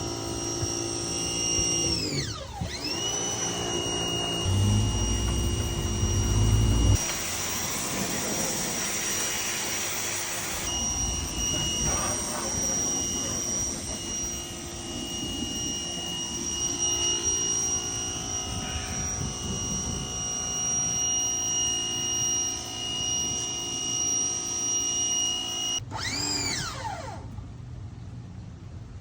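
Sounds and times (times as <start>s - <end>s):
supercharger whine: 0.0s - 28.9s
engine running with whine: 0.0s - 29.0s.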